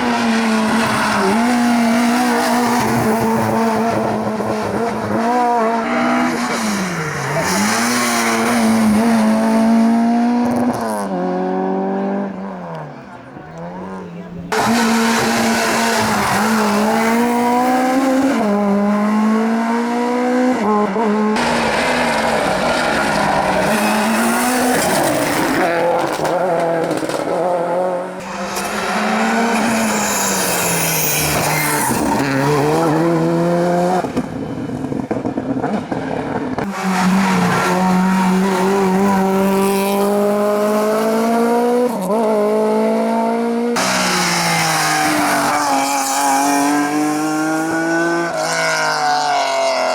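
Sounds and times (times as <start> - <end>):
racing car engines revving: 0.0 - 49.9
tyre squeal: 21.7 - 25.6, 28.2 - 33.1.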